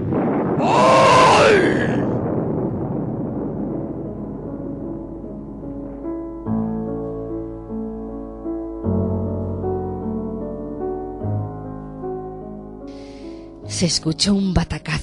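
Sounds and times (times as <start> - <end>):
slow piano chords: 3.5 - 14.6.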